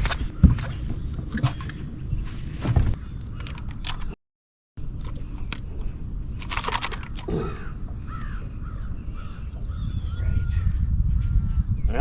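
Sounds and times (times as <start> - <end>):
bird cawing: 7.1 - 10.7.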